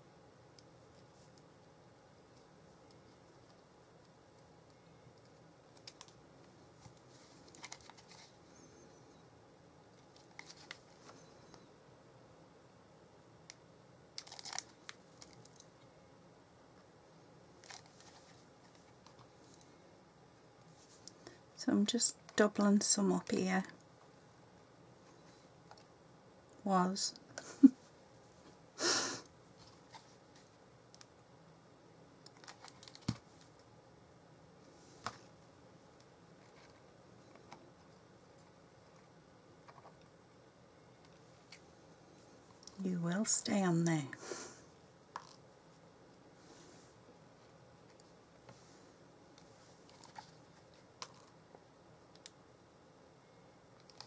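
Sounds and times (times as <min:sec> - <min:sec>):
paper and card crinkling: 0:06.8 - 0:08.4, 0:10.0 - 0:11.3, 0:14.2 - 0:15.6, 0:17.6 - 0:19.6, 0:32.3 - 0:33.5, 0:49.8 - 0:51.4.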